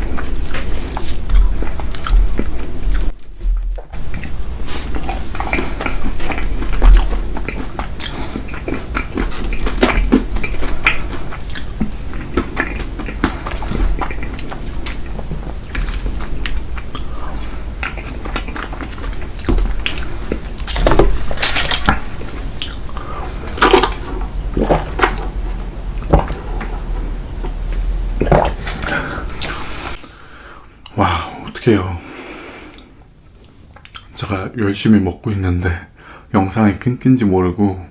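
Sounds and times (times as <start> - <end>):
chewing: 0.0 - 3.4, 4.0 - 30.0.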